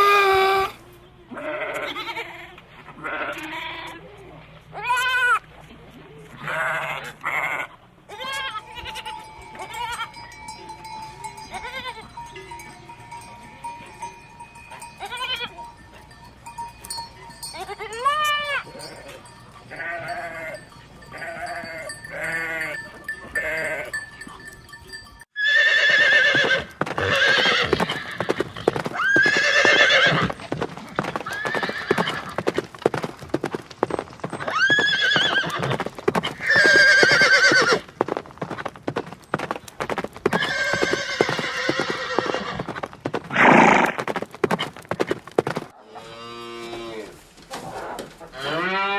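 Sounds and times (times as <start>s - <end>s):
farm animals bleating: 0.0s - 4.1s, 4.7s - 5.4s, 6.3s - 13.8s, 14.7s - 15.7s, 17.3s - 24.4s, 25.4s - 32.6s, 34.3s - 38.7s, 39.8s - 44.8s, 48.2s - 48.9s
bell ringing: 8.7s - 25.3s
horse whinnying: 25.4s - 32.6s, 34.3s - 37.9s, 40.2s - 42.7s, 43.3s - 44.8s.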